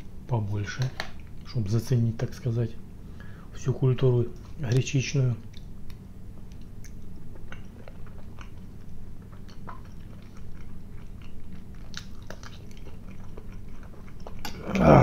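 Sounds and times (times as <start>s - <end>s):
man chewing and biting: 5.5s - 14.9s.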